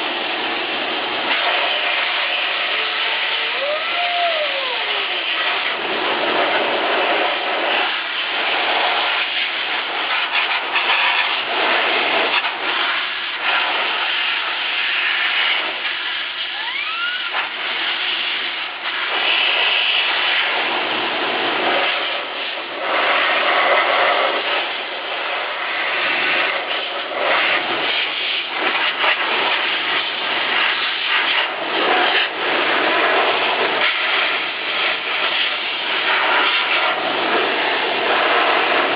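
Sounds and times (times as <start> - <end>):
vacuum cleaner blowing air: 0.0 - 38.9
rising whistle: 2.5 - 5.7, 16.5 - 17.4.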